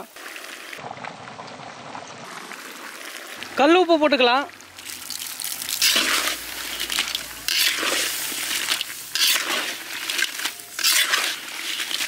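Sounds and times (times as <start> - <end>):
crabs sizzling in oil: 2.3 - 12.0
metal spatula turning crabs: 4.7 - 12.0.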